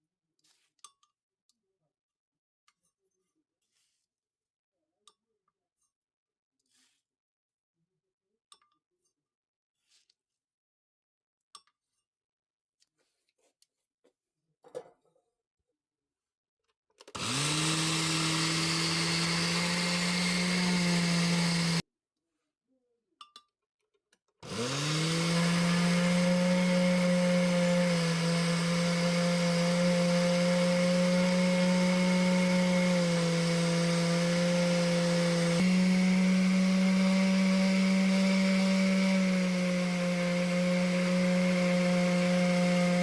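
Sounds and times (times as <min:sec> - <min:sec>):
blender motor grinding: 0:17.2 - 0:21.8, 0:24.4 - 0:43.0.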